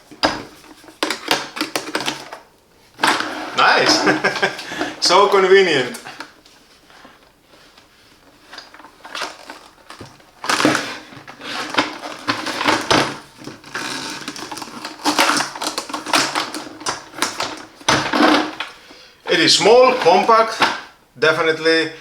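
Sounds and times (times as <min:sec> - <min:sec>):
plastic parts clicking and rattling: 0:00.0 - 0:05.3, 0:08.4 - 0:18.8.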